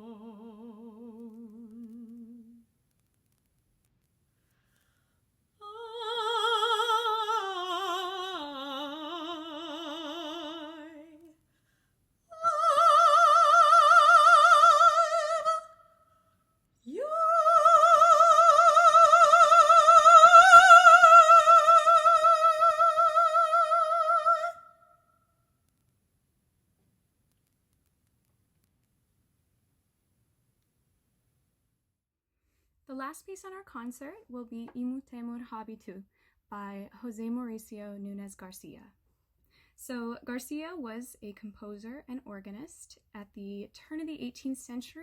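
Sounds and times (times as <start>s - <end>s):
classical singer with vibrato: 0.0s - 2.7s, 5.6s - 11.4s, 12.3s - 16.1s, 16.8s - 24.9s.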